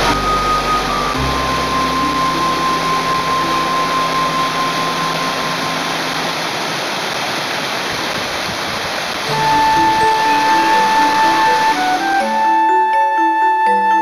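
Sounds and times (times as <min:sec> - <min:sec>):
waterfall rushing: 0:00.0 - 0:13.6
faint background music: 0:09.3 - 0:14.0.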